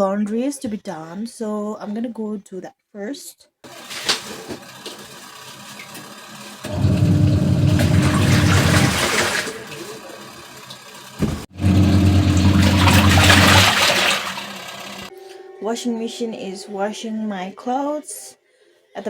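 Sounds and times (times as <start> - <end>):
washing machine humming: 3.7 - 15.1
water rushing: 3.7 - 15.1.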